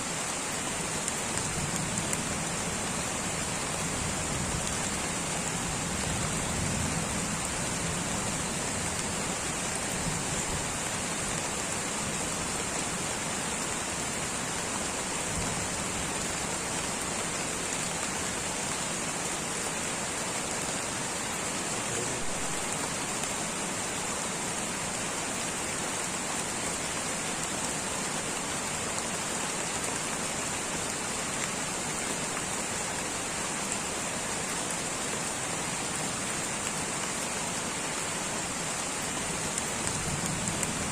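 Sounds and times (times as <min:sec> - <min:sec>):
light rain on foliage: 0:00.0 - 0:40.9.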